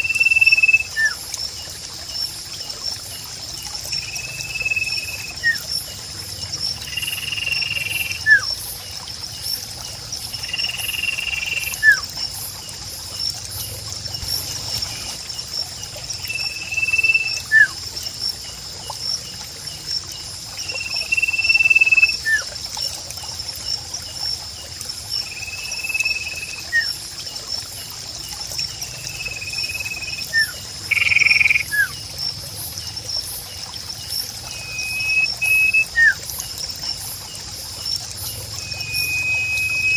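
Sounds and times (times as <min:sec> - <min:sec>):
high insect trill: 0:00.0 - 0:39.9
trickle of water: 0:00.0 - 0:39.9
whistled bird notes: 0:34.5 - 0:36.2, 0:38.6 - 0:39.9.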